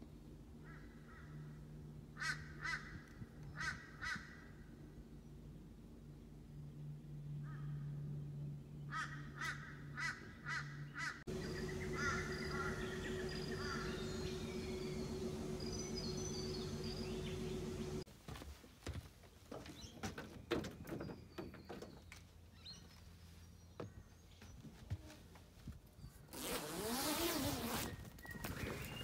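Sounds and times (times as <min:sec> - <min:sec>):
bird repeated short calls: 0:10.0 - 0:18.0
faint high bird chirps: 0:11.3 - 0:18.0, 0:27.4 - 0:29.0
low steady hum: 0:11.3 - 0:18.1.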